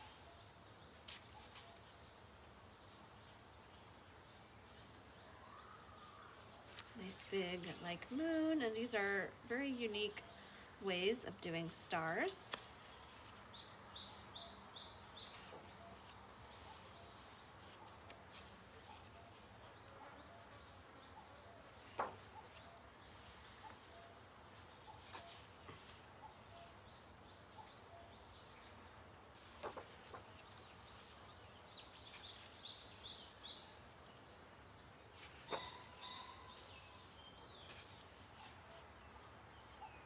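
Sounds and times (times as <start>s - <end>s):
paper pages rustling: 0.0s - 1.9s, 6.7s - 8.9s, 11.7s - 13.4s, 15.2s - 19.6s, 21.7s - 24.2s, 24.9s - 26.8s, 29.4s - 33.0s, 35.1s - 38.8s
bird chirping: 0.0s - 40.0s.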